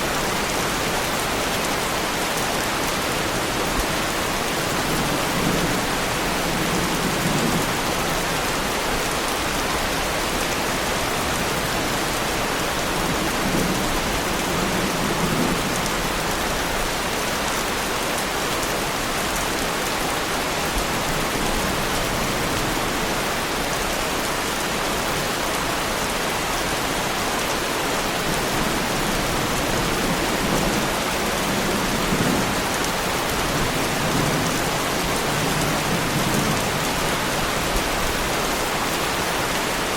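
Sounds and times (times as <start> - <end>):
heavy rain on car body: 26.4 - 39.9.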